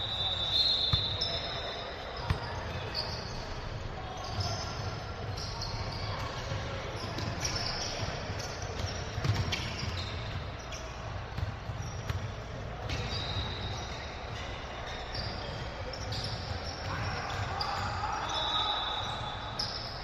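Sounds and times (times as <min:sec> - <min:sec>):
sneaker squeaks: 0:00.0 - 0:20.0
basketball bouncing on court: 0:02.2 - 0:03.4, 0:06.3 - 0:13.8.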